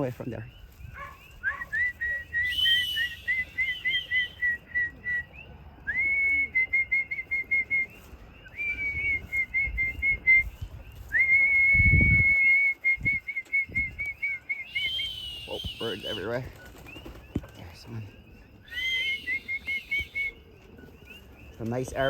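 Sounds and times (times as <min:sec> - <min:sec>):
person whistling warbled notes: 0:01.5 - 0:05.3, 0:08.6 - 0:16.0.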